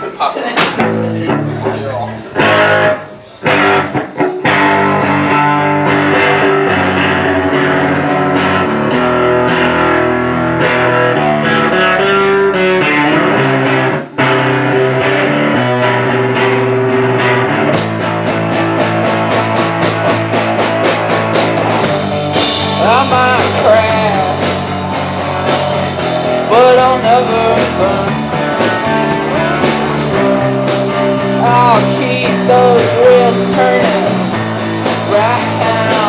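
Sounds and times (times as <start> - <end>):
distorted electric guitars: 0.0 - 36.0
bass guitar: 0.6 - 36.0
fast drum beat: 17.8 - 36.0.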